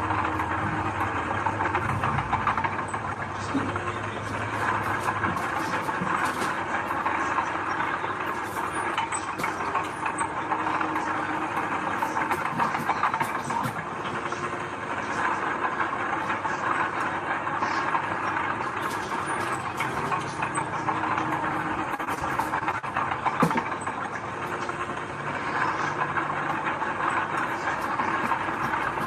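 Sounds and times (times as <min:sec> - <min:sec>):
heavy machinery diesel engine running: 0:00.0 - 0:29.0
metallic clanks and rattles: 0:18.6 - 0:24.8.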